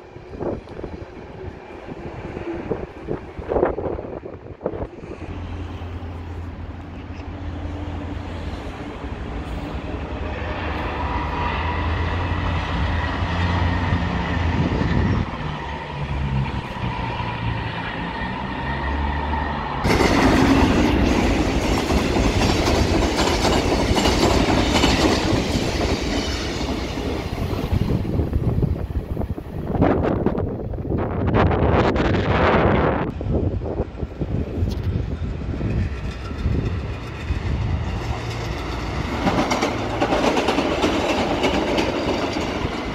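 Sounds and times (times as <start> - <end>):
train rumble: 0.0 - 42.9
train wheels clattering on rails: 19.8 - 28.4, 34.6 - 42.9.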